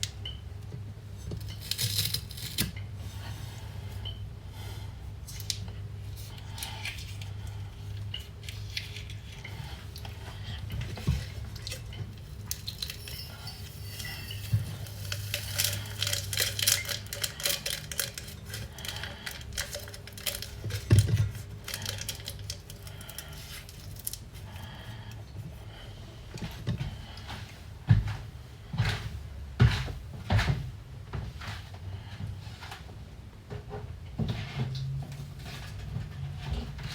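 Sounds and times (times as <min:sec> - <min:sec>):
steady low hum: 0:00.0 - 0:36.9
dishes and utensils clinking: 0:10.9 - 0:22.6.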